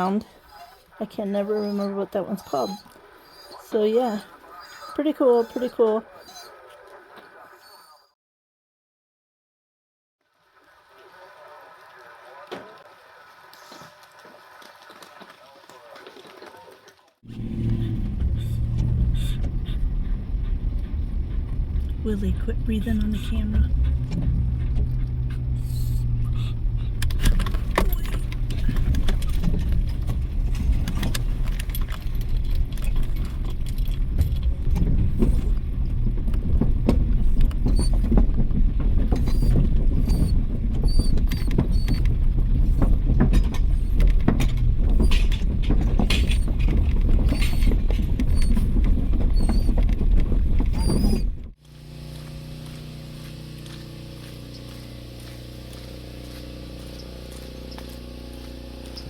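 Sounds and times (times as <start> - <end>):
road noise inside vehicle: 17.3 - 59.0
small clicks and rattles: 23.8 - 51.7.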